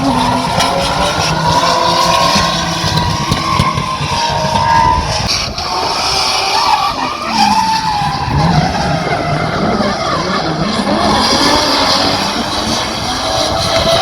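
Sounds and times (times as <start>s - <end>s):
car engines revving: 0.0s - 14.0s
tyres skidding: 0.0s - 14.0s.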